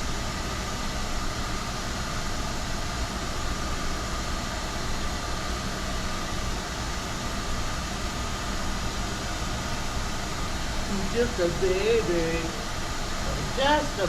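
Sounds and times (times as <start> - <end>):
faint high-pitched hum: 10.6 - 14.0.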